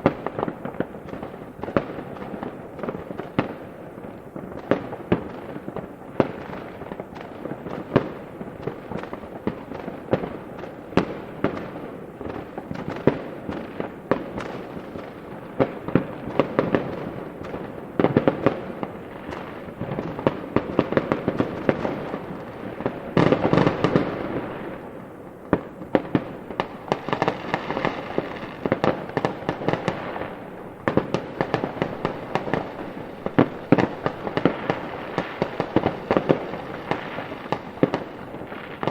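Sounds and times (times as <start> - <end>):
fireworks bangs: 0.0 - 38.9
fireworks crackling: 0.0 - 38.9.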